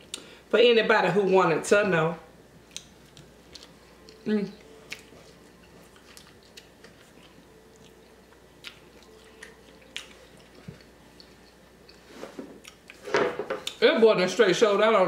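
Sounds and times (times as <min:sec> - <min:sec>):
faint steady hum: 0:00.0 - 0:15.0
quiet chewing: 0:02.6 - 0:13.8.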